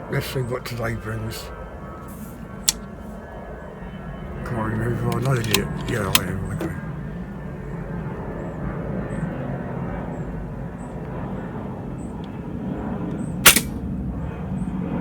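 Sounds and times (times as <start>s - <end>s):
air rifle shot crack: 13.4s - 13.9s.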